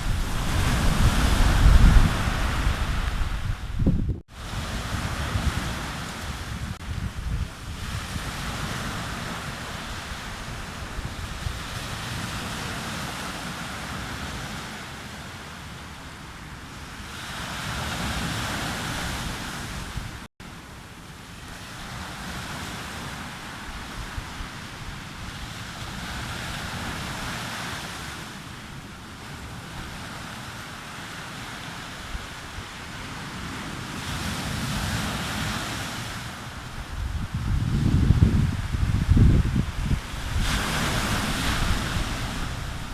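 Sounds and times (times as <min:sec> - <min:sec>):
wind buffeting microphone: 0:00.0 - 0:13.4, 0:32.0 - 0:42.9
sea waves breaking: 0:00.0 - 0:20.3, 0:21.5 - 0:42.9.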